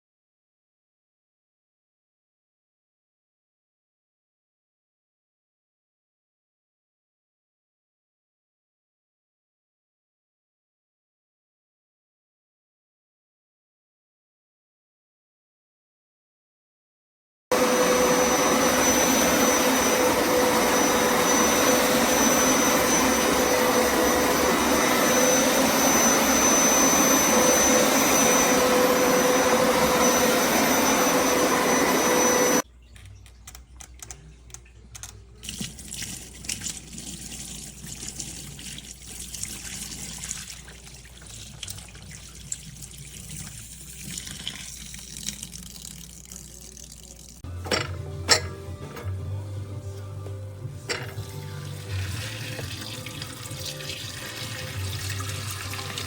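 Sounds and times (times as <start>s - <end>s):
carpet cleaner running with whine: 17.5s - 32.6s.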